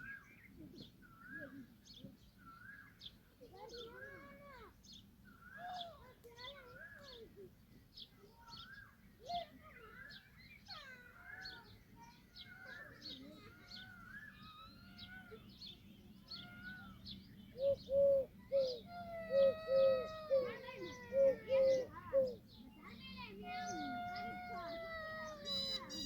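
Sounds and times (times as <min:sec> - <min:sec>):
birds chirping and whistling: 0:09.8 - 0:11.7, 0:12.4 - 0:22.4.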